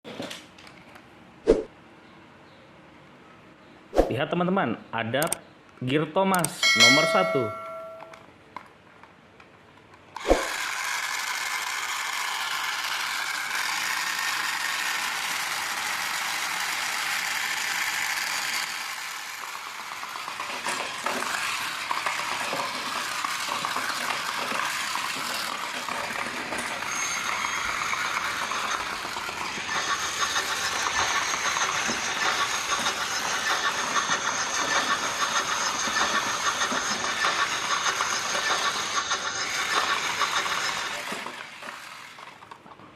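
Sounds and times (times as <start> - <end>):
toy train motor whirring: 10.2 - 42.6.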